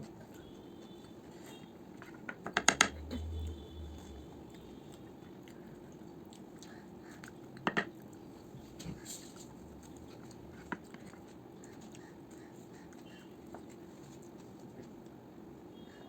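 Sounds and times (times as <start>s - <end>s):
sharp clicks and knocks: 2.4s - 3.2s.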